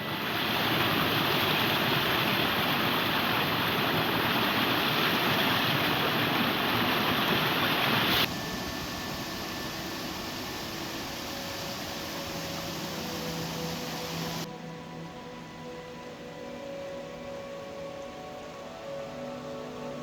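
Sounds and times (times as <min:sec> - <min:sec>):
stream rushing over rocks: 0:00.0 - 0:14.5
steady hiss: 0:00.0 - 0:20.0.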